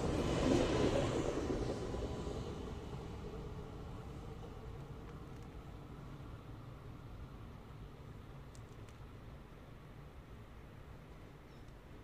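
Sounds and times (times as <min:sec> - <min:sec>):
electric train rumbling away: 0:00.0 - 0:05.0.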